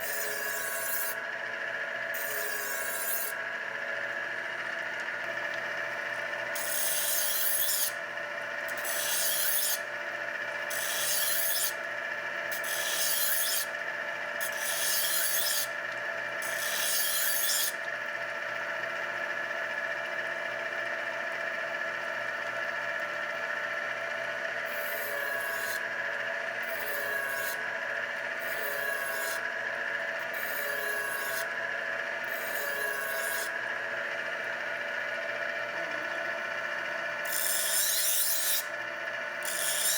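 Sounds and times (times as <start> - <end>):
knife rasping on honing wheels: 2.1 - 3.4, 6.5 - 8.0, 8.7 - 9.9, 10.7 - 11.8, 12.5 - 13.7, 14.4 - 15.8, 30.3 - 31.5, 32.3 - 33.5, 37.2 - 38.8, 39.4 - 39.9.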